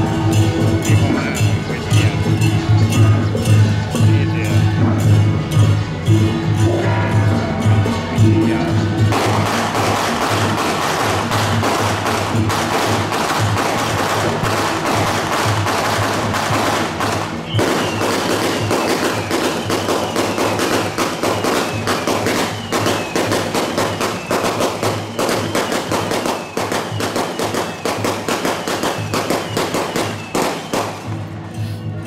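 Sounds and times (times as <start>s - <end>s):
percussion procession music: 0.0s - 32.0s
firecrackers crackling: 8.7s - 32.0s.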